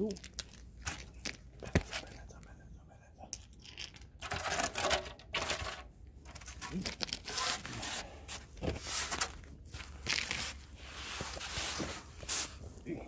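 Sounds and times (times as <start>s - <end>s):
scraping and rubbing on car bumper: 6.3s - 12.8s.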